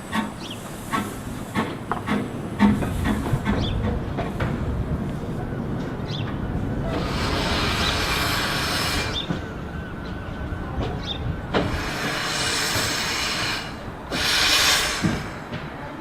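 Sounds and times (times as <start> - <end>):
steam hiss: 0.0 - 3.7, 6.8 - 9.4, 11.5 - 15.8.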